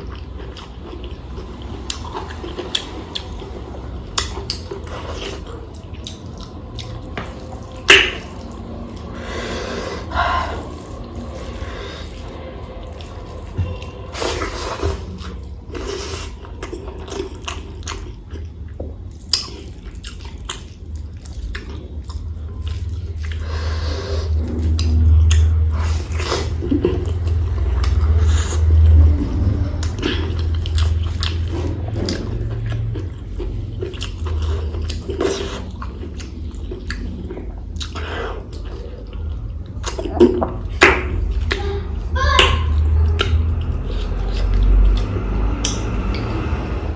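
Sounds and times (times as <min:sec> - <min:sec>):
wet mouth clicks and smacks: 0:43.1 - 0:46.3.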